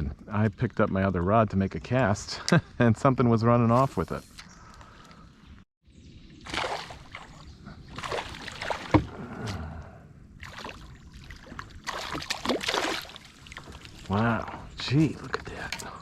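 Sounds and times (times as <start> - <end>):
water splashing beside a kayak: 6.4 - 9.6, 10.4 - 14.7.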